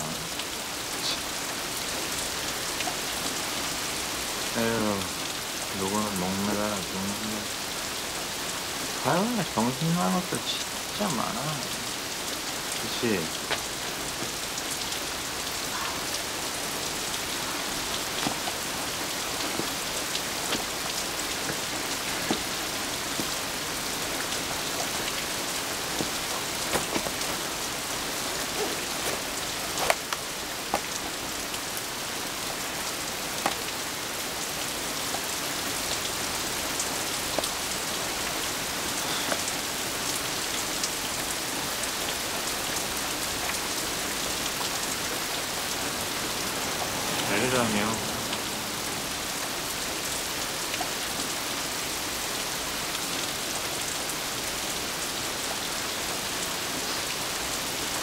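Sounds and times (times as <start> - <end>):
rain falling on a bus shelter: 0.0 - 58.0.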